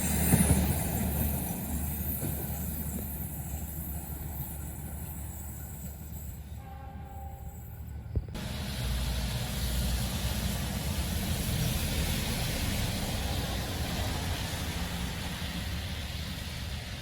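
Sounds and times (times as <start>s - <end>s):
bus engine rumble: 7.6s - 17.0s
tyre hiss on wet road: 8.4s - 17.0s.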